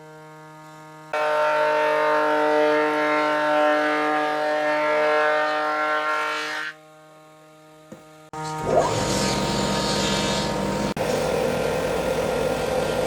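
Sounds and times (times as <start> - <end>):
power tool motor whine: 8.4 - 12.9.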